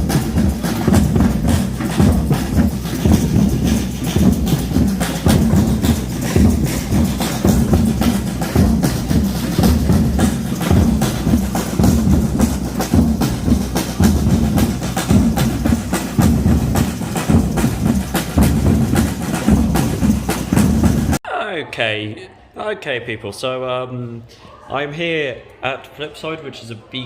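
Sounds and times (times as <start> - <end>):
drums playing fast beat: 0.0 - 21.2.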